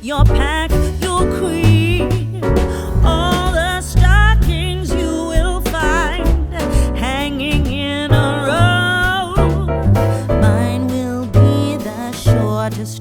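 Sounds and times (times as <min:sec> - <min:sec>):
song with sung melody and beat: 0:08.2 - 0:13.0.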